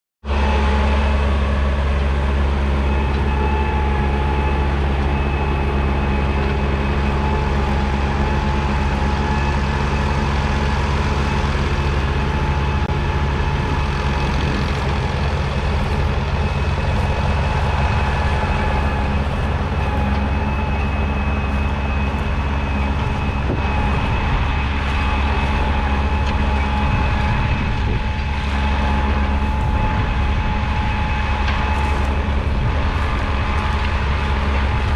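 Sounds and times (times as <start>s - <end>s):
diesel engine running: 0.2s - 34.9s
thin steady whine: 0.3s - 34.9s.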